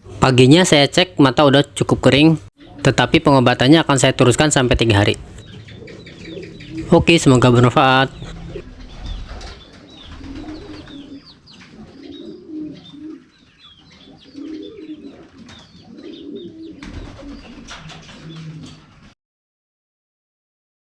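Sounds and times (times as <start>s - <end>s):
pigeons cooing: 2.6s - 3.0s, 5.2s - 7.5s, 8.1s - 19.2s.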